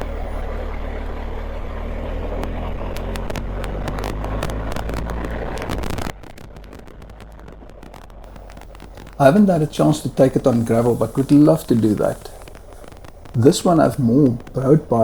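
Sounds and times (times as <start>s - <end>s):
motorcycle engine running: 0.0s - 6.3s
sharp clicks: 8.3s - 15.0s.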